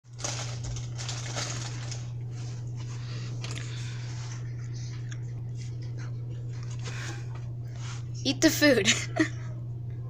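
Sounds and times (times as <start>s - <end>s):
rustling crackling handling noises: 0.1s - 4.4s
low hum: 0.1s - 10.0s.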